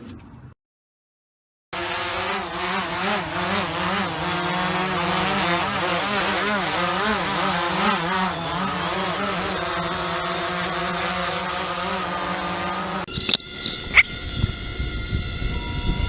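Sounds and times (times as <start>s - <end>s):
drone propellers buzzing: 13.1s - 16.0s.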